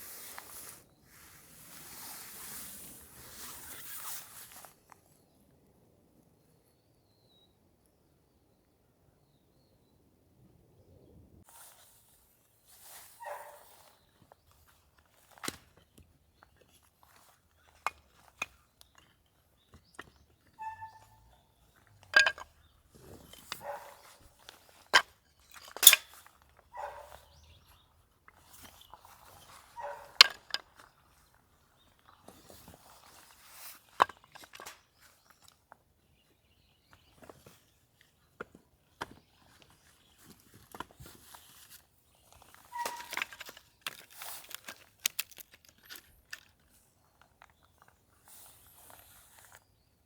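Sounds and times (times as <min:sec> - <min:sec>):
rustling scrapes: 0:00.0 - 0:04.8, 0:41.0 - 0:46.1
handling clicks and knocks: 0:22.0 - 0:22.6, 0:24.9 - 0:26.2, 0:29.8 - 0:30.9, 0:33.9 - 0:34.8, 0:42.4 - 0:46.7.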